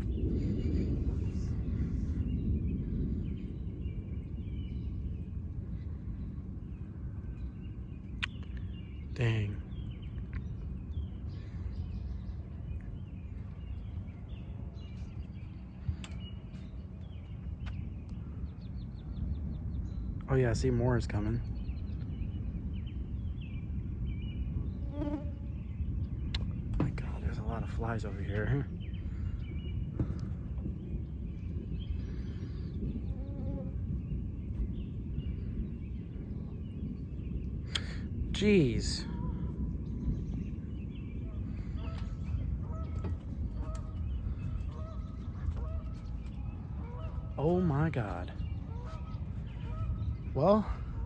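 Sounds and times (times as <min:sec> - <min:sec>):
birds chirping: 0:00.0 - 0:51.0
low thunder rumble: 0:00.0 - 0:51.0
fly buzzing: 0:24.8 - 0:25.5.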